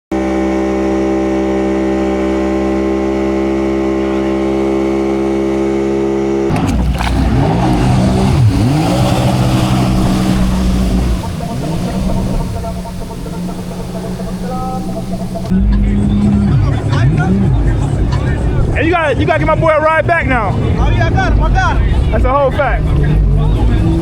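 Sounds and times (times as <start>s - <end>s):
engine revving: 0.1s - 24.0s
steady droning tone: 6.5s - 24.0s.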